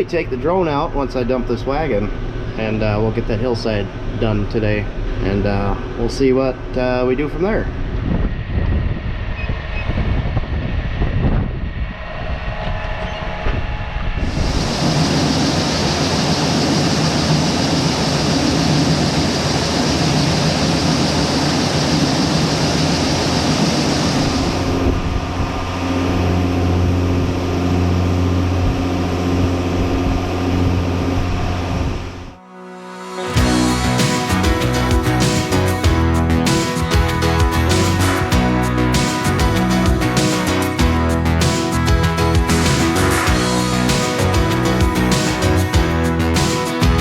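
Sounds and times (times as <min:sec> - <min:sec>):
tractor engine hum: 0:11.8 - 0:47.0.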